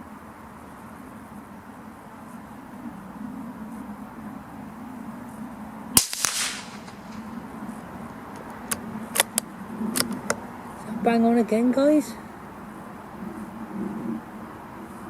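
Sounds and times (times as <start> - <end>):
rifle shot: 6.0 - 7.4
sharp clicks: 6.0 - 7.4, 8.3 - 10.4.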